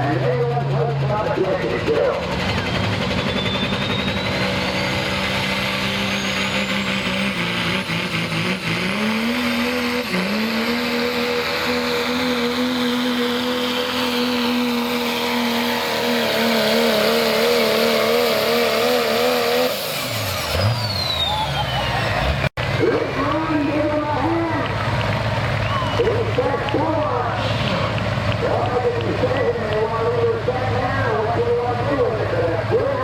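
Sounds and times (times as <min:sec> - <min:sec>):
diesel pickup engine at full throttle: 0:00.0 - 0:33.0
high turbo whistle: 0:02.6 - 0:07.8.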